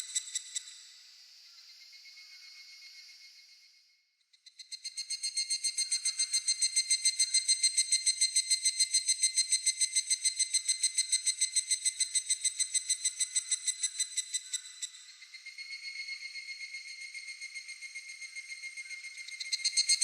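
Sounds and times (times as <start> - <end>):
cicada call in high pulses: 0.0 - 3.8, 4.5 - 20.0.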